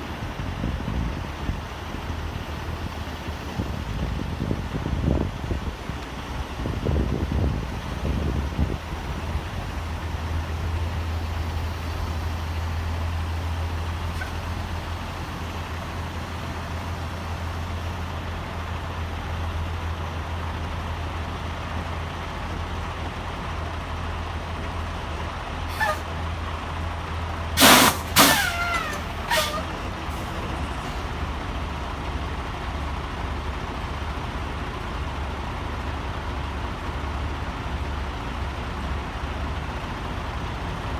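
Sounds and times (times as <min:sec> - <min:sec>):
road noise inside cab: 0:00.0 - 0:40.9
truck engine drone: 0:00.0 - 0:40.9
squeals sliding downward: 0:25.7 - 0:26.1, 0:27.6 - 0:31.2.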